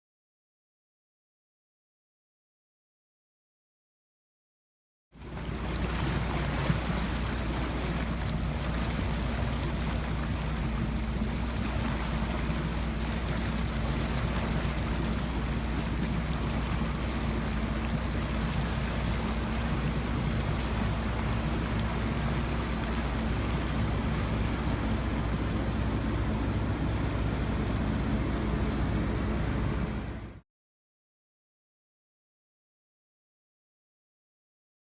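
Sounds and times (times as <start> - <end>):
boat engine running: 5.2 - 30.4
water rushing: 5.2 - 30.4.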